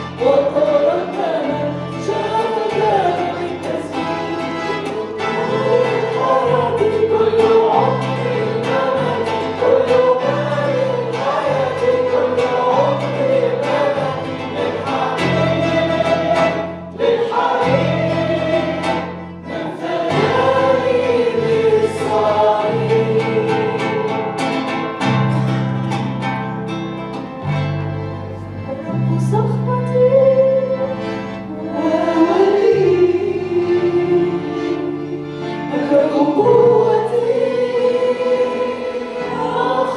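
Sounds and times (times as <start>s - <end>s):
congregation singing together: 0.0s - 26.3s, 29.9s - 39.9s.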